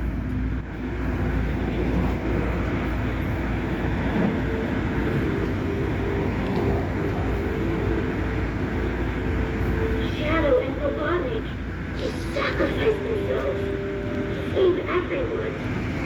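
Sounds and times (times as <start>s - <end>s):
constant humming tone: 0.0s - 16.0s
train rumbling: 0.0s - 16.0s.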